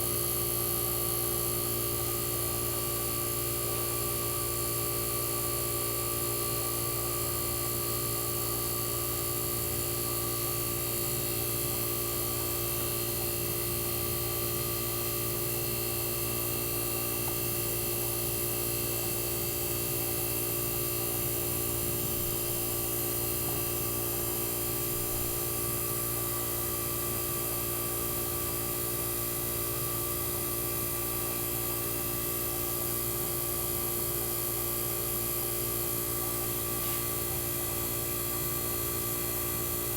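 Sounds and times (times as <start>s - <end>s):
air conditioner humming: 0.0s - 39.9s.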